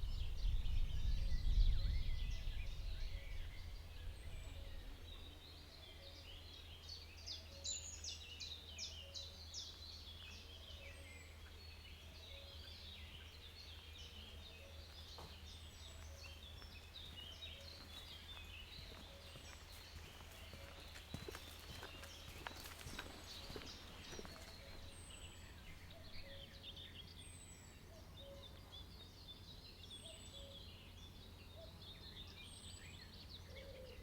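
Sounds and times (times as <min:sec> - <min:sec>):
faint low rumble: 0:00.0 - 0:07.1
birds chirping and trilling: 0:00.0 - 0:34.0.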